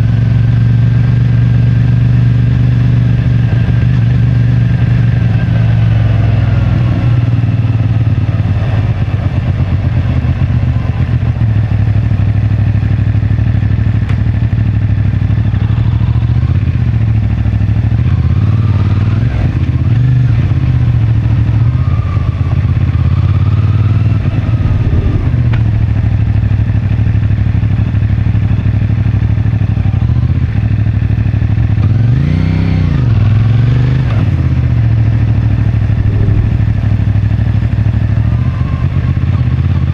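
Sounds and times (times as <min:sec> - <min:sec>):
motorcycle engine running: 0:00.0 - 0:39.9
engine revving: 0:15.1 - 0:28.5, 0:29.7 - 0:39.9.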